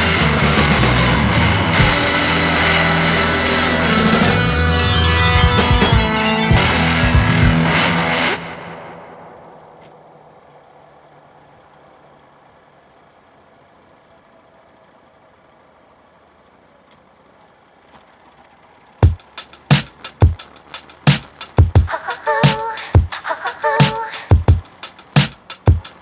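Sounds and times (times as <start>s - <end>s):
music: 0.0s - 9.0s, 19.0s - 23.2s, 23.8s - 26.0s
sharp drum hits: 5.3s - 7.9s, 19.0s - 23.1s, 23.8s - 26.0s.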